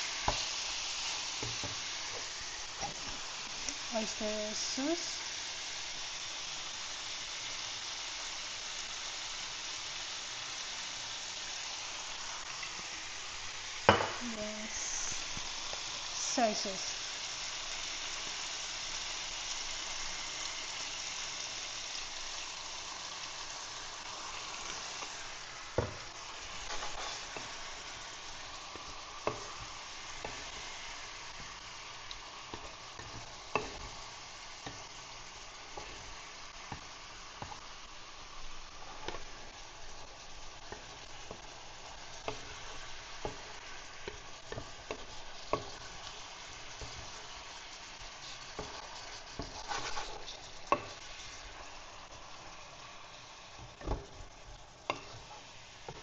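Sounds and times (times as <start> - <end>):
chicken sizzling in hot oil: 0.0 - 56.0.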